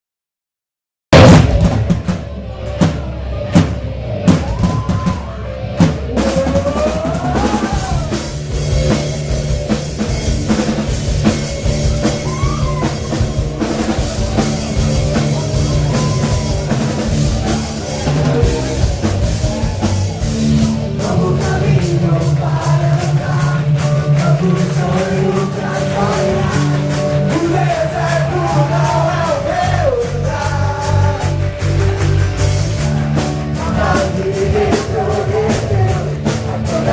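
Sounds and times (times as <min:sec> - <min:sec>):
sharp drum hits: 0:01.1 - 0:02.3
rock band playing: 0:01.1 - 0:36.9
person singing: 0:06.0 - 0:08.3, 0:11.8 - 0:31.5, 0:33.5 - 0:36.9.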